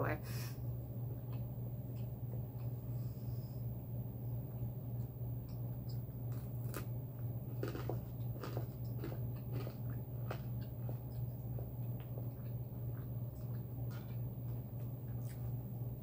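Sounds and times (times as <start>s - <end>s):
steady low hum: 0.0s - 16.0s
person chewing food: 1.1s - 3.0s, 4.4s - 16.0s.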